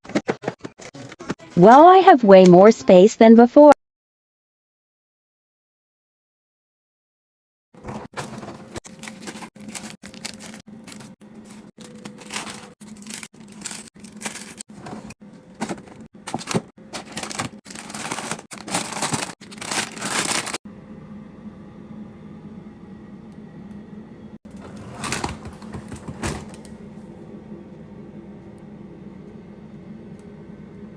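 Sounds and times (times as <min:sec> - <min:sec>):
steady low hum: 0:07.8 - 0:30.9
packaging rustling and crinkling: 0:07.9 - 0:20.6.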